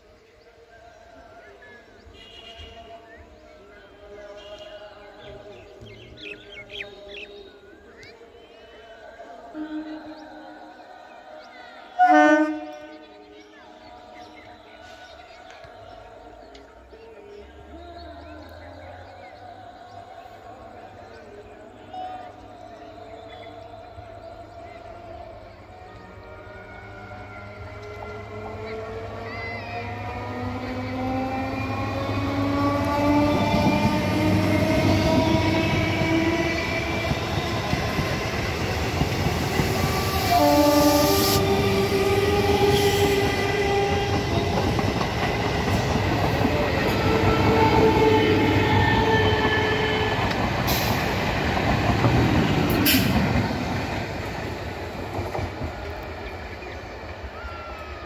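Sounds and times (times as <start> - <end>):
wheels rumbling over track: 25.8 - 58.0
train motor whine: 26.9 - 53.8.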